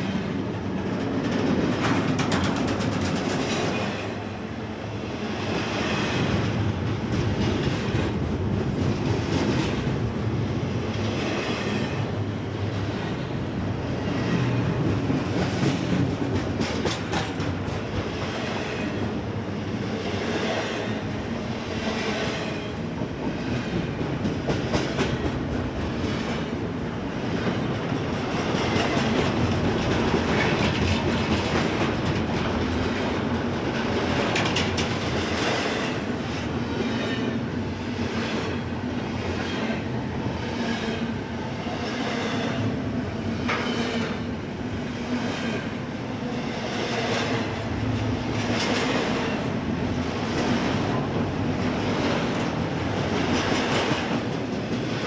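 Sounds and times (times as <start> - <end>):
train wheel squeal: 0.0 - 4.2, 36.6 - 37.5, 38.2 - 42.6
train rumble: 0.0 - 55.0
train wheels clicking over rail joints: 0.5 - 3.9, 14.3 - 19.1, 28.0 - 36.1.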